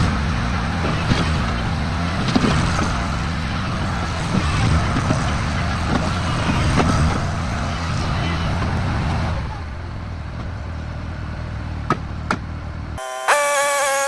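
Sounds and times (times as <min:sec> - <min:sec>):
knocks and clanks: 0:00.0 - 0:07.3
loader engine running: 0:00.0 - 0:14.0.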